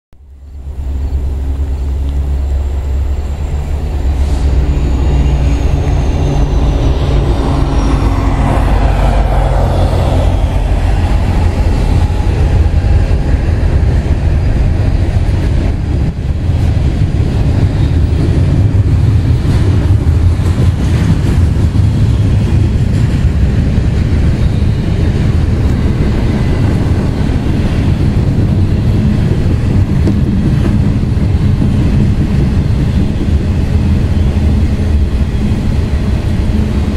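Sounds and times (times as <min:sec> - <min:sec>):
high whine falling in pitch: 0:00.2 - 0:16.4
diesel locomotive engines droning: 0:00.2 - 0:36.9
freight cars rumbling over rails: 0:00.2 - 0:36.9.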